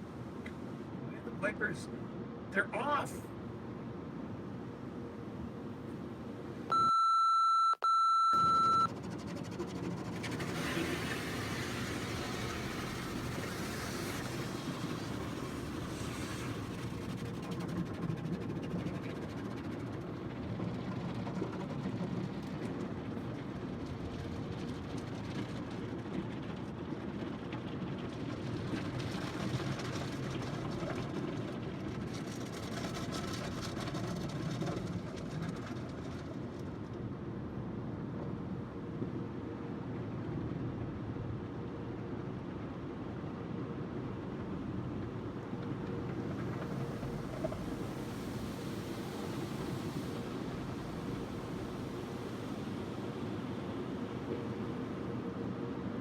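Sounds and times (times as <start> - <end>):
high-pitched beeps: 6.7 - 8.9
car wash conveyor and brushes rumbling: 8.5 - 56.0.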